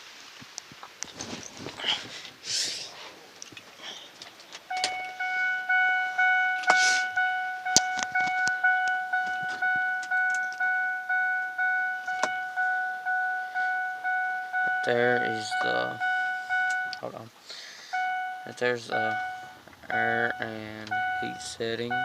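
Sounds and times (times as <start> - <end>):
dashboard warning chime dinging: 4.6 - 17.2, 17.8 - 22.0
sharp clicks: 7.7 - 10.7.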